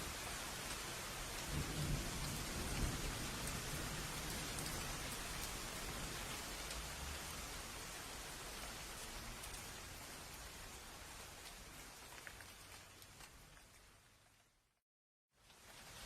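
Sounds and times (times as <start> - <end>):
rain hissing: 0.0 - 14.1
low rumble of thunder: 1.3 - 6.7.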